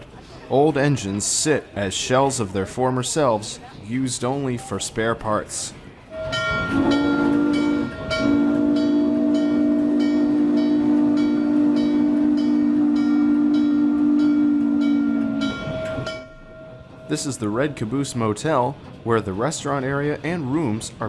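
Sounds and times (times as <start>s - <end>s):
steam locomotive chime whistle: 6.1s - 18.2s
train wheels clicking: 6.2s - 19.2s.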